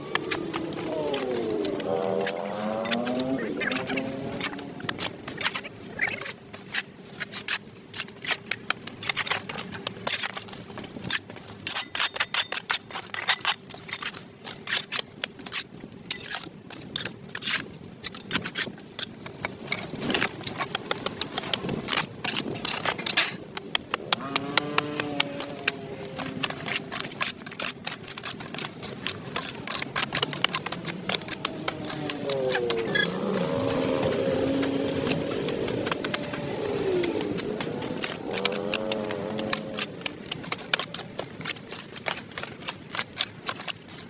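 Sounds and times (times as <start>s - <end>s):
tool scraping sidewalk: 0.0s - 44.0s.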